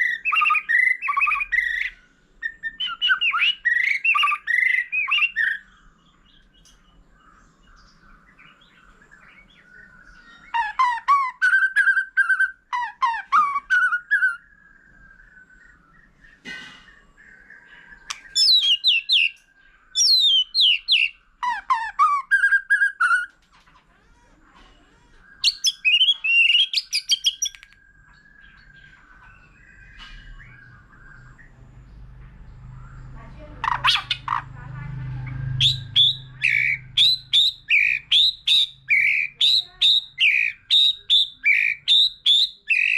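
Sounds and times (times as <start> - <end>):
bird singing whistled phrases: 0.0 - 5.7, 9.5 - 16.2, 18.0 - 23.3, 25.2 - 31.4, 35.5 - 42.9.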